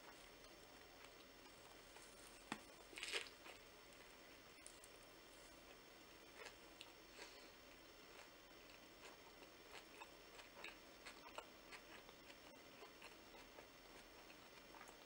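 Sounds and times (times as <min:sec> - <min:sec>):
person chewing with wet clicks: 0:05.7 - 0:15.0.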